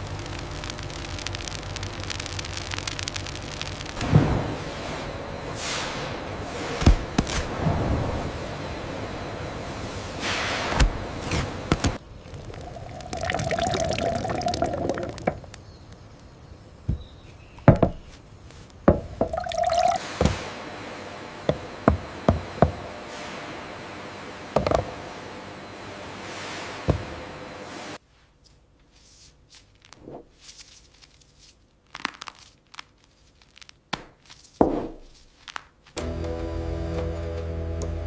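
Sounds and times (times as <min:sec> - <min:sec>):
liquid pouring and dripping: 0:12.2 - 0:15.6, 0:19.2 - 0:20.2
filling tone: 0:12.3 - 0:15.4, 0:19.3 - 0:20.1.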